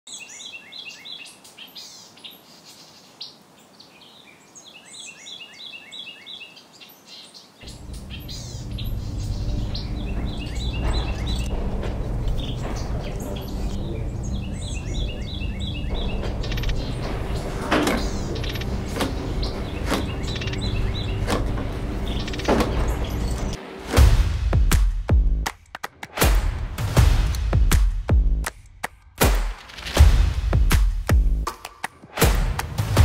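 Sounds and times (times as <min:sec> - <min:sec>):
songbird chirping: 0:00.1 - 0:23.6.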